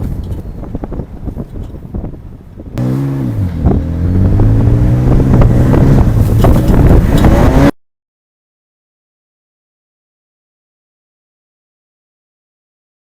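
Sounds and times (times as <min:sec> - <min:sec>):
car exhaust accelerating hard: 0:02.8 - 0:07.7.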